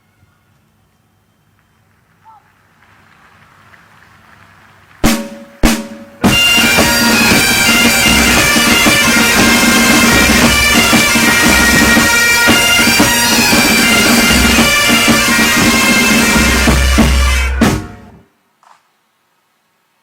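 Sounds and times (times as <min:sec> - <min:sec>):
drums beating: 0:05.0 - 0:18.2
bagpipes playing a tune: 0:06.2 - 0:18.2.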